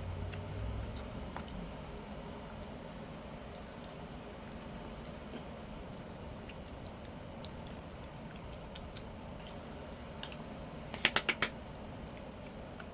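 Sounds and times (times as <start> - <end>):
quiet chewing: 0.3 - 1.7, 2.5 - 10.5
sharp clicks: 11.0 - 11.5.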